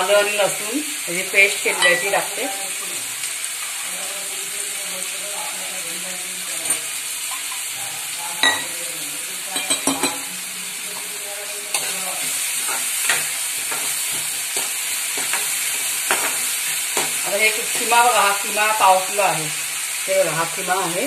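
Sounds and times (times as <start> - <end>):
onions sizzling in hot oil: 0.0 - 21.0
spoon stirring in pan: 9.5 - 18.8.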